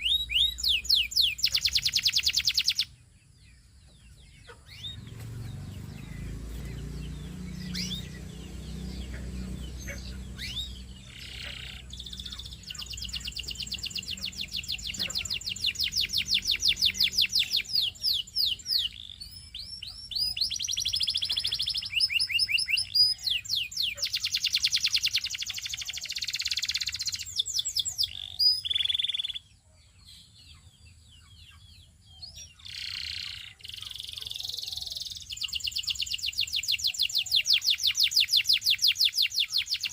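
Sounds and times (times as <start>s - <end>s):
canary singing: 0.0s - 39.9s
low rumble: 4.8s - 14.9s.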